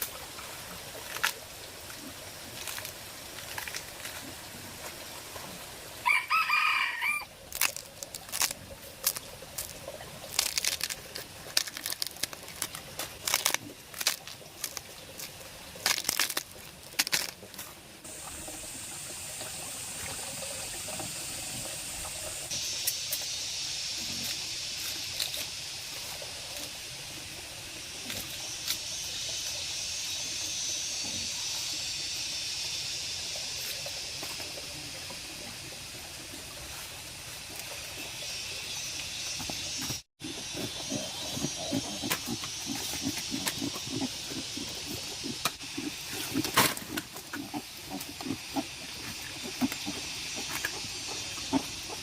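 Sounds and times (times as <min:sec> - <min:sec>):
running water rushing: 0:00.0 - 0:32.0
steady high hiss: 0:18.0 - 0:39.4.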